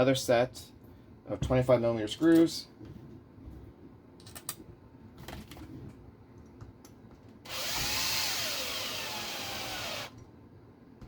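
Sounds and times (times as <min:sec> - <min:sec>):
power driver whining: 0:07.5 - 0:10.2.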